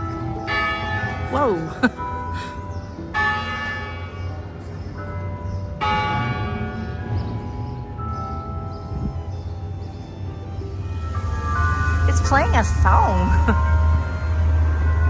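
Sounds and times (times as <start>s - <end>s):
church bells ringing: 0.0s - 15.0s
steady low rumble: 10.7s - 15.0s.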